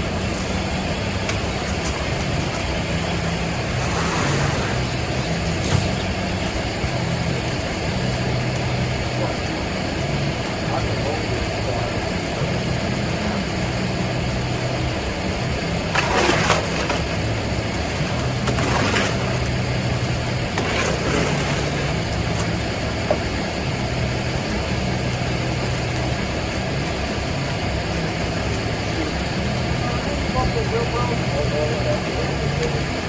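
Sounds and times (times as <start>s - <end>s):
engine running steadily: 0.0s - 33.0s.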